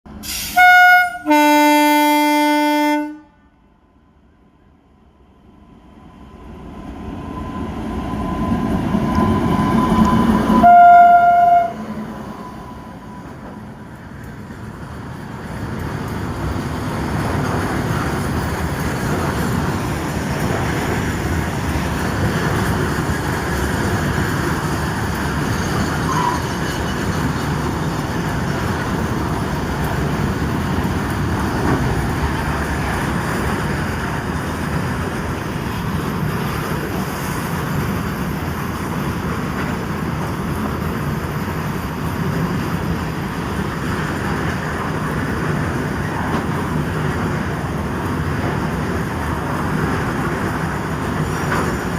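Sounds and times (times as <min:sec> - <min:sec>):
train horn blast: 0:00.3 - 0:03.5, 0:10.0 - 0:13.0
electric locomotive rumble: 0:04.2 - 0:51.9.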